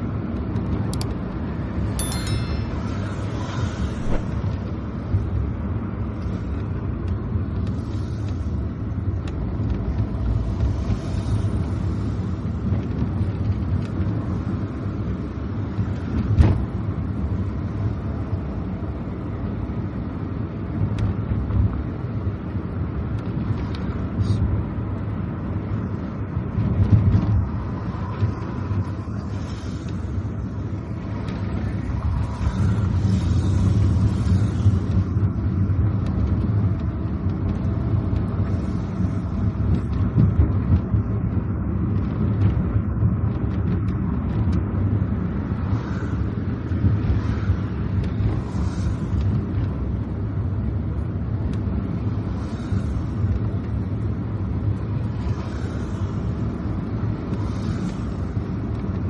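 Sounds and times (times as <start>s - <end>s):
car engine and tyres rumbling: 0.0s - 1.9s, 3.6s - 59.0s
tyres hissing on wet road: 28.4s - 35.3s, 47.0s - 49.4s, 52.0s - 53.3s, 55.1s - 58.8s.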